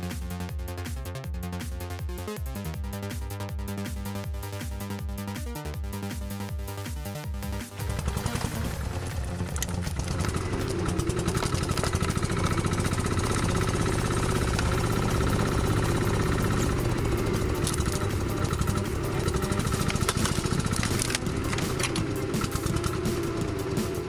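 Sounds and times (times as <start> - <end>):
vehicle engine running: 7.7 - 24.0.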